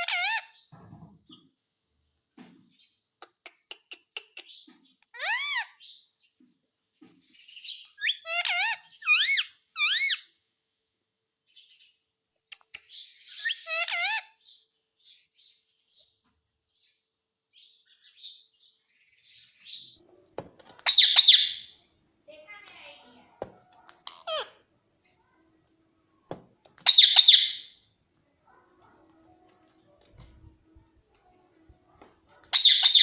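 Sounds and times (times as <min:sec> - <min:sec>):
parrot calling and chirping: 0:00.0 - 0:00.7, 0:03.3 - 0:06.1, 0:07.4 - 0:10.4, 0:12.5 - 0:15.3, 0:20.6 - 0:21.9, 0:22.6 - 0:24.7, 0:26.7 - 0:27.9, 0:32.4 - 0:33.0.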